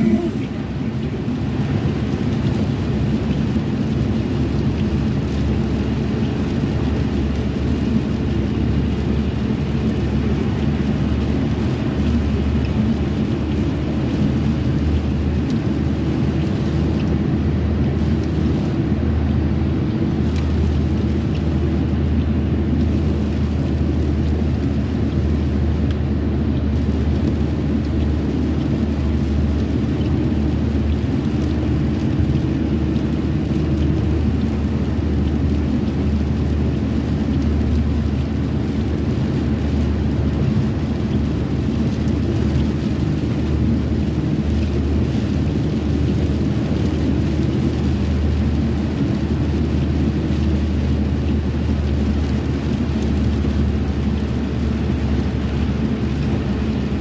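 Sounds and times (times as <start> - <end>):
car driving rumble: 0.0 - 57.0
rain: 0.0 - 57.0.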